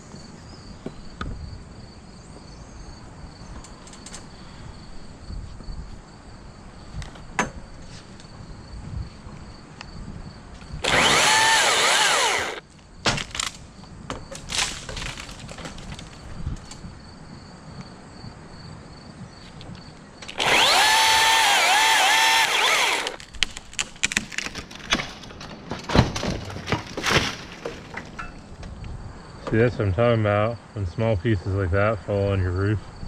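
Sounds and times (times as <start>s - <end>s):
chainsaw cutting wood: 10.8s - 12.6s, 20.3s - 25.1s
wood pieces dropping: 10.8s - 16.8s, 20.2s - 28.5s.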